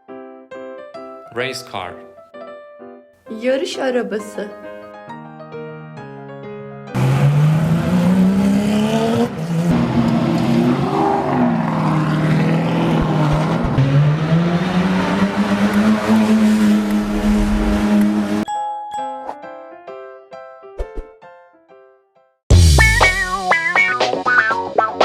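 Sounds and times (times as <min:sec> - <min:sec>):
racing car engine at high revs: 0:07.0 - 0:18.5.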